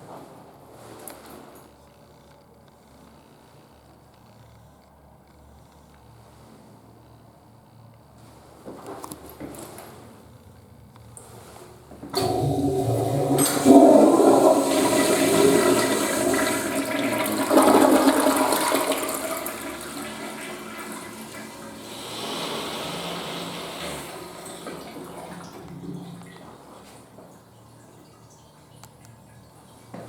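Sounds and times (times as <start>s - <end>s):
toilet flushing: 12.1s - 30.0s.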